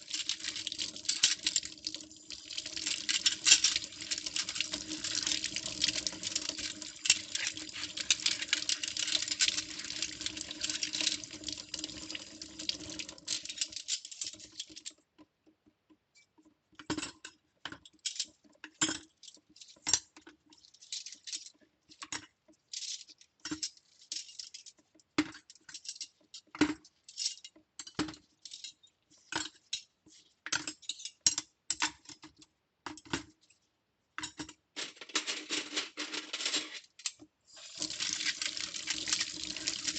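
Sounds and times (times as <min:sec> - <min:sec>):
metal utensils clinking: 0:34.8 - 0:36.8
tap running into a sink: 0:37.6 - 0:39.9.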